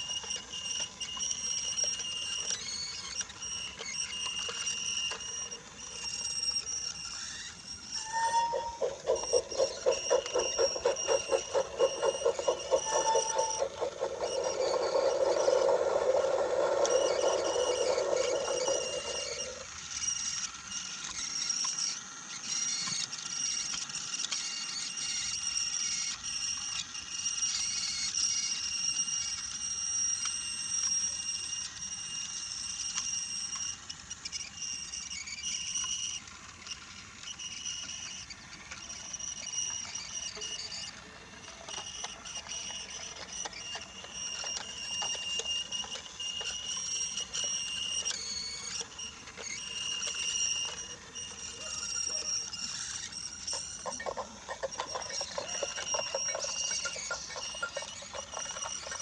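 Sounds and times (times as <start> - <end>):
toy train motor whine: 0.0 - 59.0
wheels clattering over track joints: 8.5 - 19.6.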